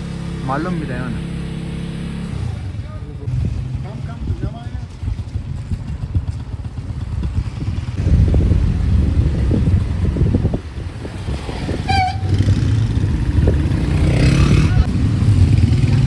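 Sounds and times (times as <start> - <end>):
motorcycle engine running: 0.0 - 16.0
horn beep: 11.8 - 12.7.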